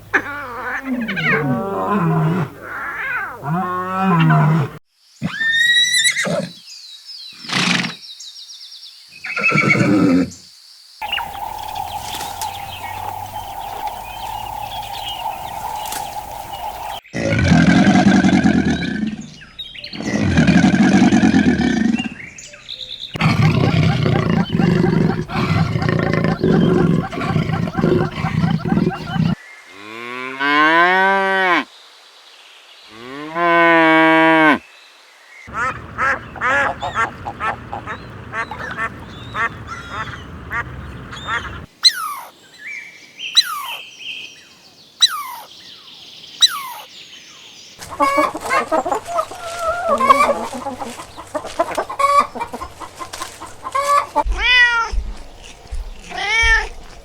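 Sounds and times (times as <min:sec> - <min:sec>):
cow lowing: 0:00.0 - 0:04.8, 0:11.0 - 0:22.2, 0:23.1 - 0:29.4, 0:47.9 - 0:57.0
geese honking: 0:11.0 - 0:17.0, 0:23.2 - 0:29.4, 0:35.5 - 0:42.2, 0:47.8 - 0:57.0
sharp high falling calls: 0:11.0 - 0:17.0, 0:46.4 - 0:46.9, 0:47.8 - 0:57.0
meow-like calls: 0:54.3 - 0:55.0, 0:56.0 - 0:56.8.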